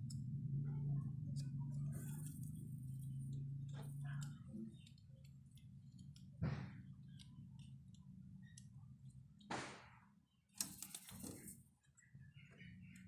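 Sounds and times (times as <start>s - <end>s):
low steady hum: 0.0s - 13.0s
small parts clicking: 1.3s - 9.5s, 10.5s - 12.1s
swishes of small parts: 10.6s - 11.6s.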